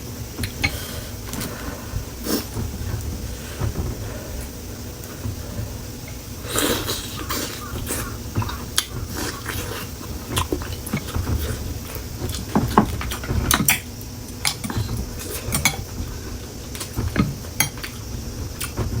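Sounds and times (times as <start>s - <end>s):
close-up chewing: 0.4s - 19.0s
utensils scraping a bowl: 6.0s - 18.0s.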